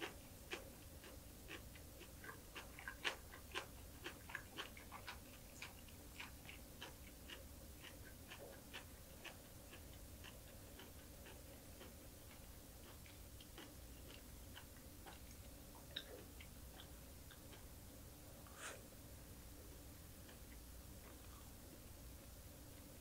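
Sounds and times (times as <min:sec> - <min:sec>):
chewing dried fish: 0:00.0 - 0:17.9.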